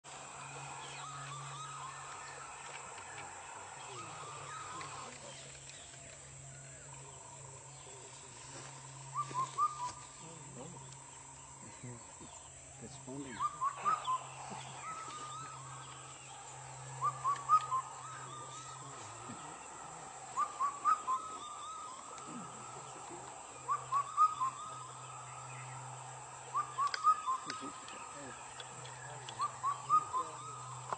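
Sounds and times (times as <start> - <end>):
cuckoo calling: 0.0 - 30.9
steady low hum: 0.0 - 30.9.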